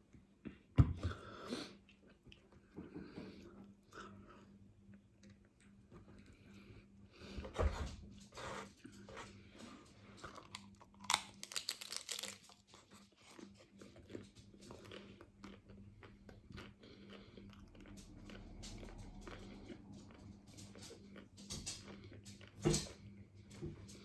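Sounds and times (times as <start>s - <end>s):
chewing: 8.4s - 23.1s
taco shell cracking: 10.4s - 12.7s.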